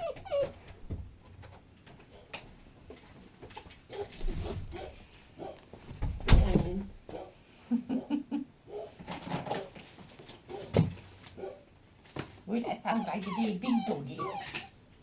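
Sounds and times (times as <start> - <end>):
puppy whimpering: 0.0 - 0.6, 12.9 - 14.8
rustling and knocking: 9.0 - 11.4.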